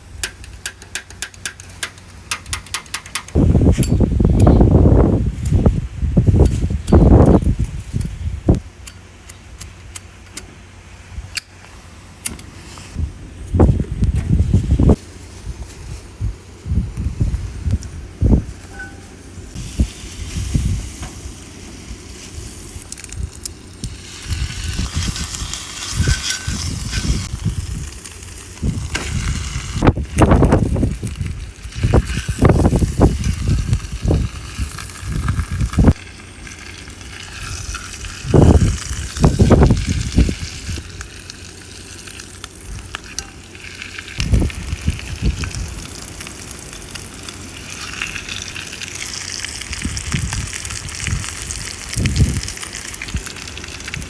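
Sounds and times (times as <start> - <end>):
wind buffeting microphone: 3.3 - 8.6, 12.9 - 21.4, 22.4 - 36.1, 37.2 - 41.1, 44.1 - 46.0, 49.5 - 54.0
steak sizzling in a skillet: 19.5 - 29.8, 30.5 - 54.0.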